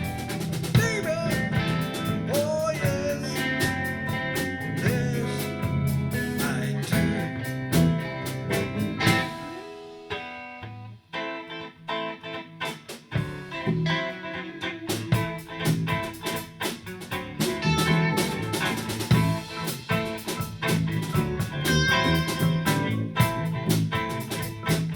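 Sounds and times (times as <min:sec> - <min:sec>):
blues-rock band playing: 0:00.0 - 0:24.9
electric guitar: 0:00.0 - 0:24.9.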